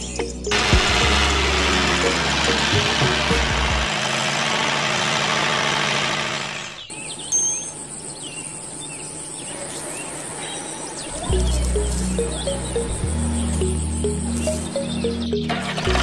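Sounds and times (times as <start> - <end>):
birds chirping: 0.0 - 3.9, 5.9 - 16.0
music with deep bass: 0.0 - 3.9, 11.3 - 16.0.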